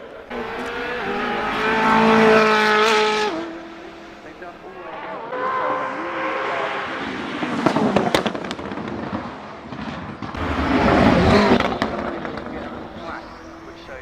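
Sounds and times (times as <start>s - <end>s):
car engine roaring: 0.0s - 14.0s
exhaust pops and cracks: 7.6s - 10.4s, 11.5s - 12.8s.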